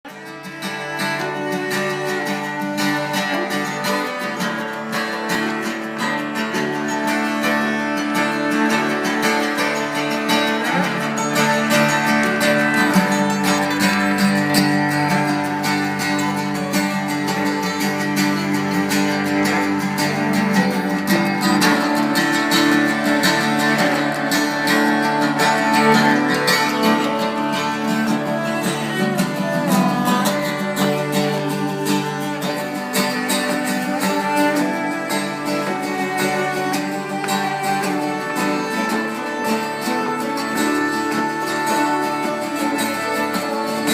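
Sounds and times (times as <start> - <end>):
plucked acoustic guitar music: 0.0 - 43.9.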